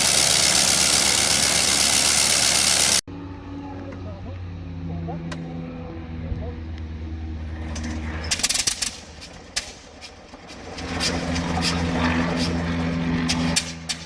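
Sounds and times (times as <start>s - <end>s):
radial aircraft engine running: 0.0s - 14.0s.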